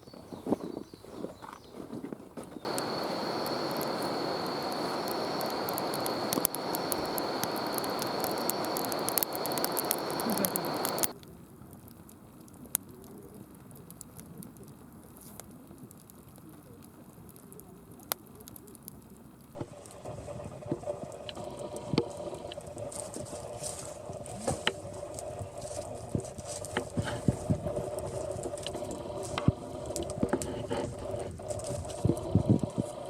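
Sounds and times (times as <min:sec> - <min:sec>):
wood fire crackling and popping: 0:00.0 - 0:33.0
fire rushing noise: 0:02.6 - 0:11.2, 0:19.6 - 0:33.0.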